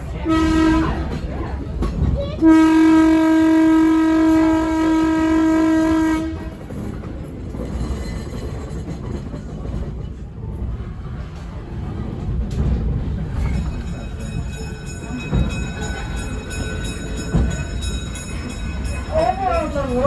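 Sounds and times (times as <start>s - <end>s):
train rolling on track: 0.0s - 20.0s
locomotive horn blast: 0.2s - 1.2s, 2.4s - 6.6s.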